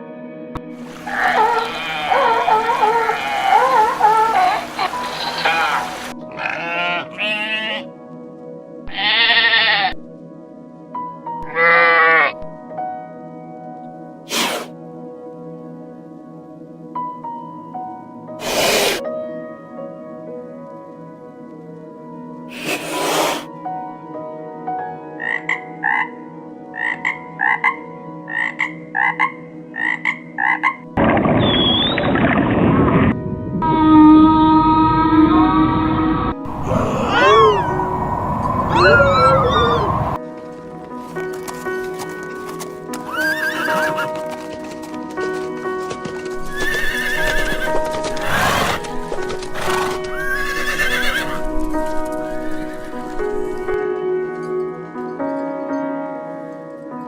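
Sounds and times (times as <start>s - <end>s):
background music: 0.0s - 32.0s, 32.6s - 57.0s
toad croaking: 0.8s - 7.8s, 25.2s - 26.2s, 26.8s - 30.8s, 36.5s - 40.2s
high-pitched wavering animal calls: 0.9s - 7.8s, 33.7s - 40.2s.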